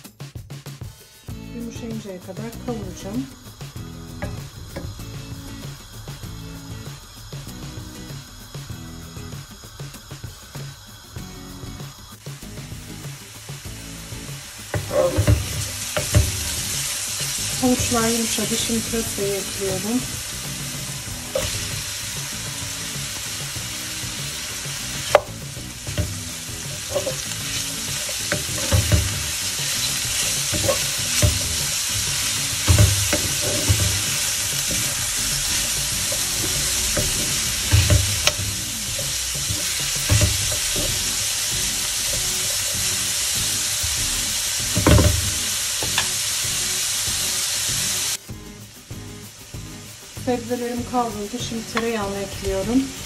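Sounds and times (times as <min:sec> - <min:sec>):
vegetables sizzling in oil: 0:00.9 - 0:53.0
wooden spoon scraping a pot: 0:14.8 - 0:16.5, 0:25.0 - 0:38.4.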